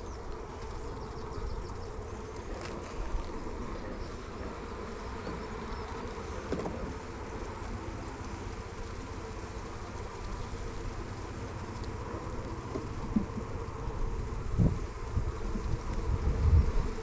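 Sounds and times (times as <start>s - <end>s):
honeybees buzzing: 0.0s - 17.0s
hive frames knocking: 12.5s - 13.7s.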